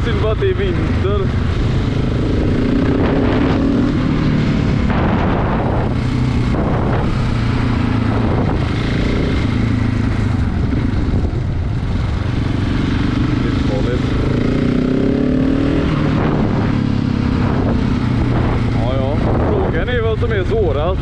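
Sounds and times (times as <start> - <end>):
motorcycle engine running: 0.0 - 21.0
wind noise on microphone: 1.4 - 13.3, 14.2 - 20.1.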